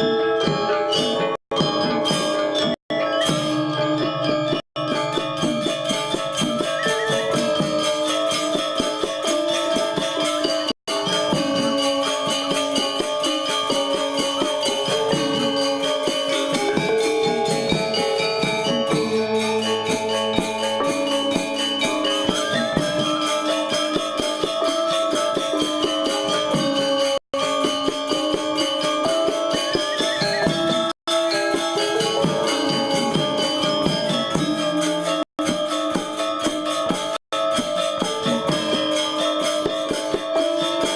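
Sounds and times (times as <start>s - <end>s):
cymbals jingling: 0.7s - 40.9s
metallophone tones ringing: 9.5s - 23.8s.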